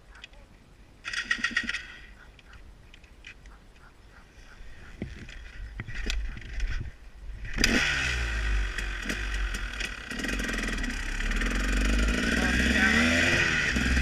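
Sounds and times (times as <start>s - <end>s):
motorcycle engine revving: 6.2s - 14.0s.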